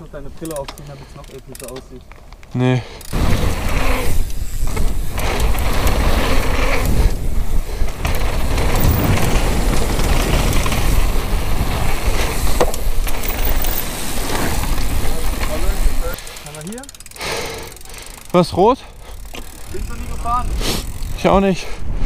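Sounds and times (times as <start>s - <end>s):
bike knocks and rattles: 3.1s - 17.1s
tyres rumbling on dirt: 3.2s - 16.6s.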